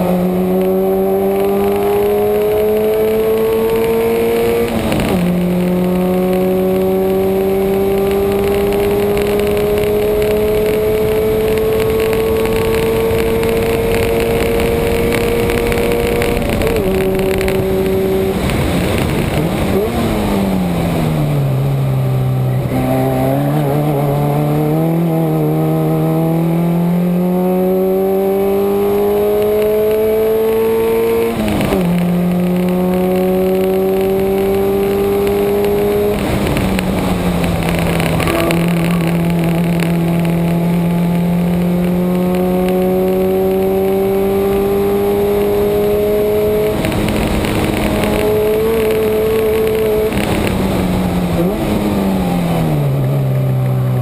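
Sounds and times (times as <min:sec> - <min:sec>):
car engine accelerating: 0:00.0 - 0:54.0
road and wind noise: 0:00.0 - 0:54.0.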